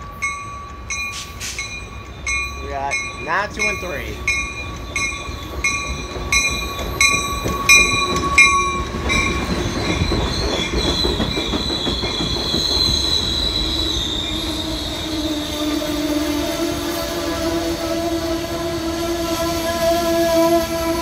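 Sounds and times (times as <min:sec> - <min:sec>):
train wheels squealing: 0:00.0 - 0:02.7, 0:03.6 - 0:21.0
bell dinging: 0:00.0 - 0:10.0
train rumble: 0:00.0 - 0:21.0.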